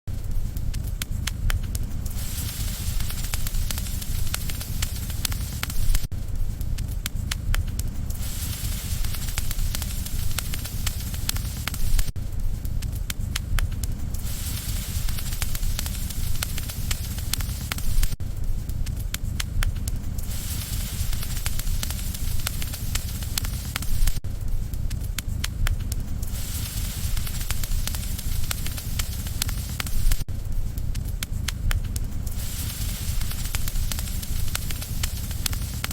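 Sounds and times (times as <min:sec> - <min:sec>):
campfire crackling and popping: 0:00.1 - 0:35.9
hiss: 0:00.1 - 0:35.9.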